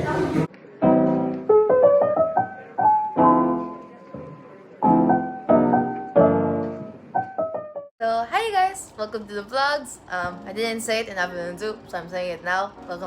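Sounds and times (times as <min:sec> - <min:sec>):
piano chords and runs: 0:00.0 - 0:07.9.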